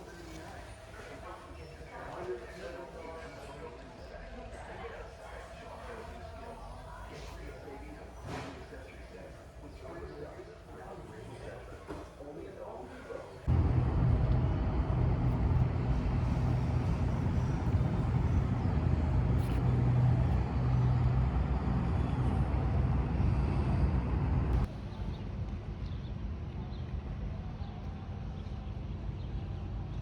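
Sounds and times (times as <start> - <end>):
vehicle engine rumbling: 5.0 - 25.2.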